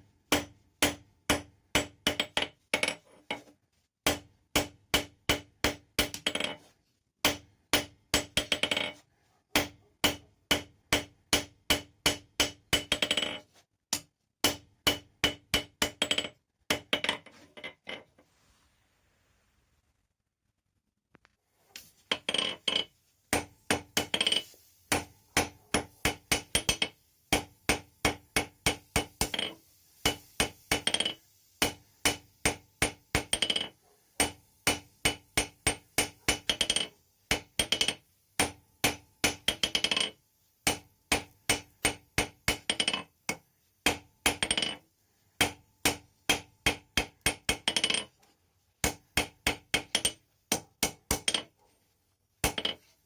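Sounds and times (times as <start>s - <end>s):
hammer striking steel on anvil: 0.3s - 2.5s, 9.6s - 13.3s, 13.9s - 16.8s, 23.3s - 44.8s, 45.4s - 48.0s, 48.8s - 51.5s.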